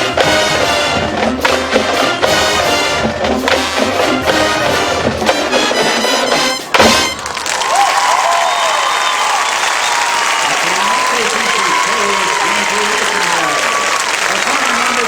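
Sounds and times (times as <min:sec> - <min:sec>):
marching band brass and percussion: 0:00.0 - 0:07.8.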